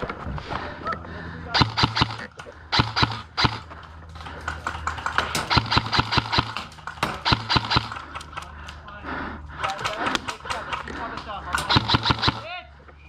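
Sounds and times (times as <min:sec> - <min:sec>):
airsoft gun shots: 0:01.6 - 0:03.8, 0:05.1 - 0:08.2, 0:11.5 - 0:12.6.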